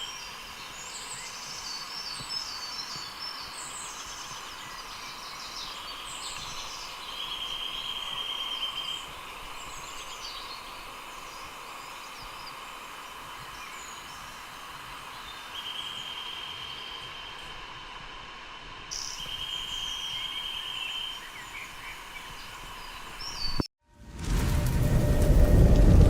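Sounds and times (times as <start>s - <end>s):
steady outdoor hiss: 0.0s - 26.0s
birds chirping: 18.9s - 23.7s.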